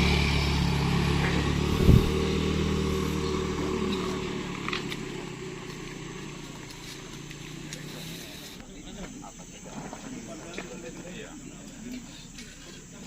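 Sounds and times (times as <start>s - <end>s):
truck engine running: 0.0s - 8.6s.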